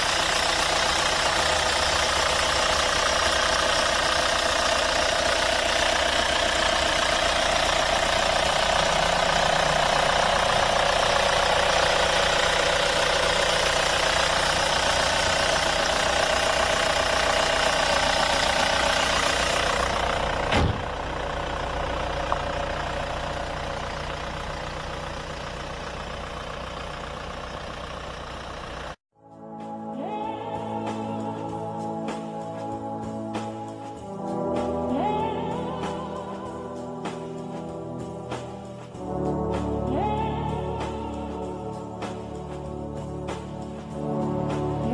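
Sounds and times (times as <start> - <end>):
diesel engine idling: 0.0 - 29.0, 31.1 - 44.9
thud: 20.5 - 20.9.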